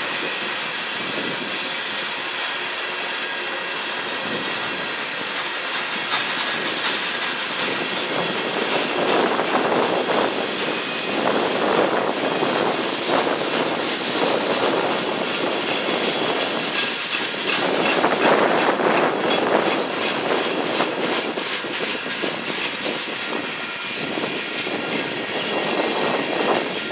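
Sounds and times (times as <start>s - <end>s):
freight train wheels rumbling on rail: 0.0s - 26.9s.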